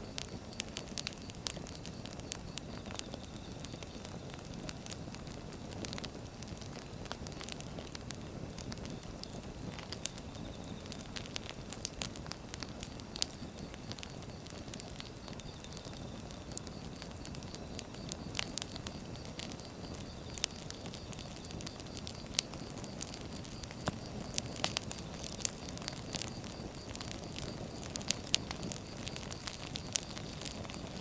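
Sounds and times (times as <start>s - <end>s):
logs crackling and popping: 0.0s - 31.0s
rumble of flames: 0.0s - 31.0s.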